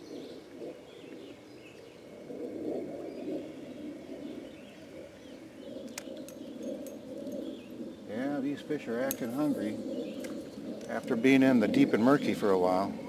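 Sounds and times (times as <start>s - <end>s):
songbirds chirping: 0.0s - 13.0s
sharp clicks: 5.8s - 7.4s.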